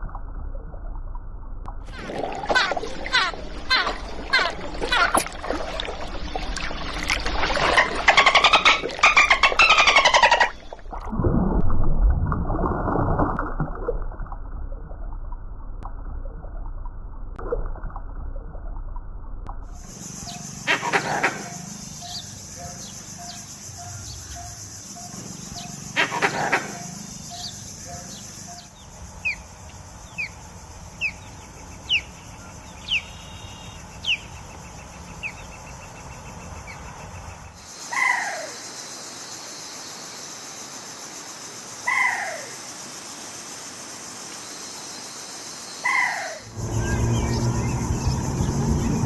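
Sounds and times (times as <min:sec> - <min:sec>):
loud animal calls: 0:01.9 - 0:05.2, 0:07.6 - 0:10.6, 0:20.6 - 0:23.4, 0:25.9 - 0:28.2.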